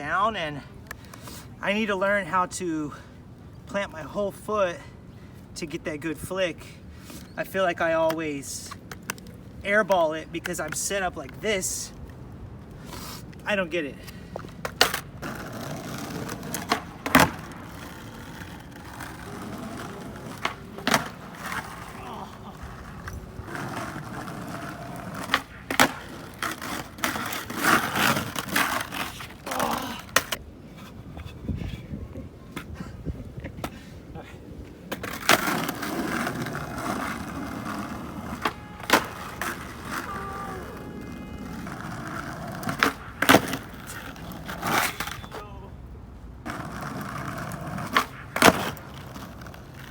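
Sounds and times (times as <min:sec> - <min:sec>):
skateboard wheels rolling: 0:05.7 - 0:49.9
skateboard clacks: 0:14.1 - 0:30.4, 0:34.8 - 0:45.4, 0:46.4 - 0:49.9.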